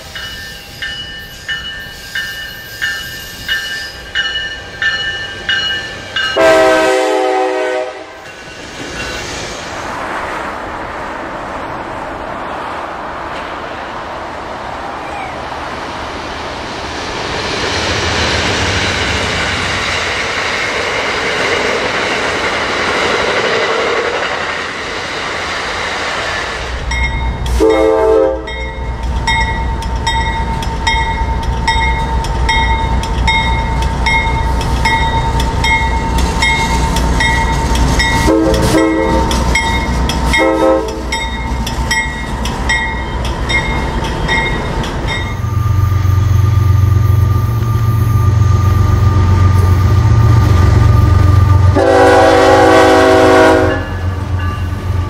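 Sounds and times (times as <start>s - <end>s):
locomotive bell ringing: 0.0s - 7.1s, 8.1s - 9.2s, 26.9s - 52.6s, 53.6s - 55.0s
diesel locomotive engine rumble: 0.0s - 55.0s
distant train wheels rumbling: 0.0s - 55.0s
highway traffic: 3.2s - 55.0s
train horn blasts: 6.4s - 8.2s, 27.5s - 28.7s, 38.2s - 39.4s, 40.3s - 41.1s, 51.2s - 54.1s.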